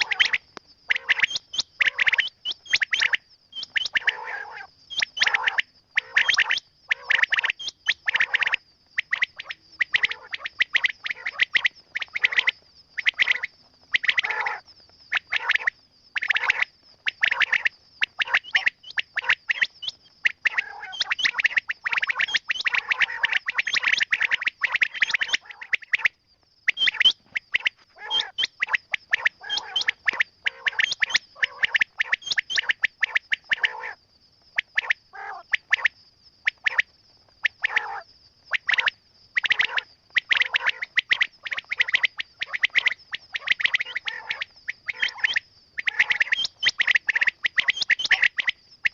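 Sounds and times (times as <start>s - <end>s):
quail chirping: 0.0s - 16.6s, 17.2s - 26.1s, 26.7s - 33.9s, 37.6s - 48.9s.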